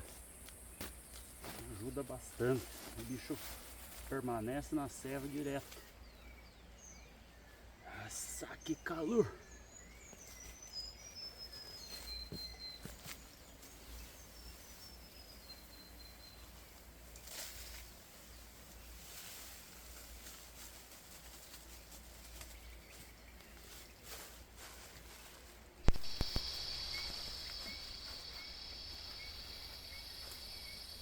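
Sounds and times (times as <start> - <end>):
rustling: 0.0 - 5.9, 16.5 - 31.0.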